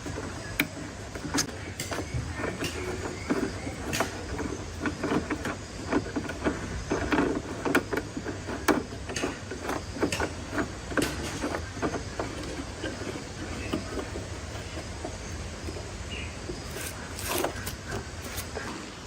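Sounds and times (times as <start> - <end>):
sharp clicks and light knocks: 0.0 - 18.9.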